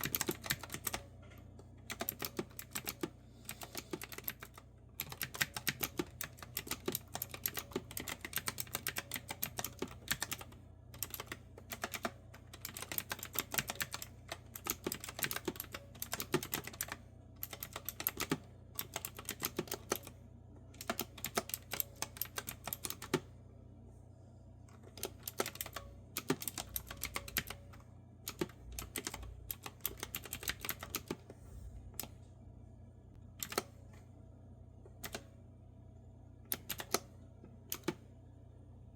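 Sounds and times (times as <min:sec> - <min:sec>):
typing on clicky keyboard: 0:00.0 - 0:01.0, 0:01.9 - 0:20.2, 0:20.8 - 0:23.2, 0:24.8 - 0:27.6, 0:28.3 - 0:31.2, 0:36.5 - 0:37.1, 0:37.7 - 0:38.0
faint low hum: 0:00.0 - 0:38.9.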